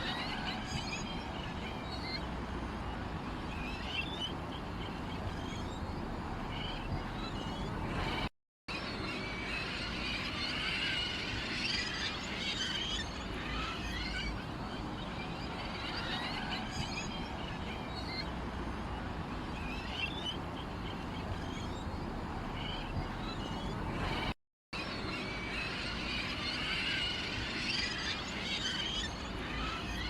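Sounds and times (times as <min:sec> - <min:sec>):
songbirds chirping: 0:00.0 - 0:30.0
steady low rumble: 0:05.1 - 0:08.3.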